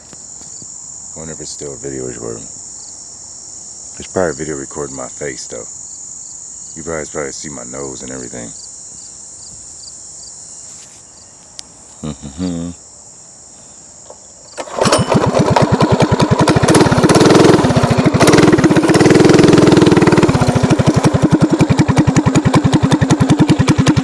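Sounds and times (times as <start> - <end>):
mini bike engine: 14.5 - 24.0.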